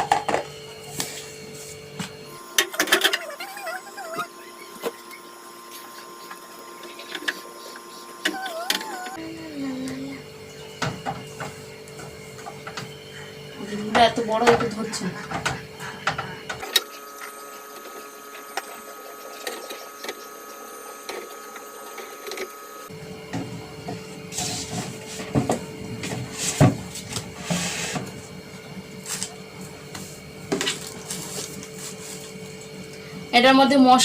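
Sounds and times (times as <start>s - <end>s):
refrigerator hum: 0.0s - 34.0s.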